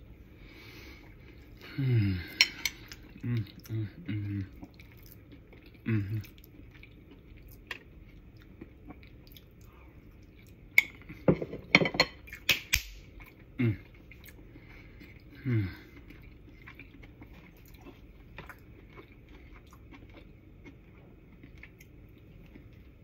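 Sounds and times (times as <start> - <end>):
person chewing food: 0.9 - 11.3, 12.2 - 23.0
person humming mm: 1.6 - 4.6, 5.8 - 6.3, 13.6 - 13.9, 15.4 - 15.9.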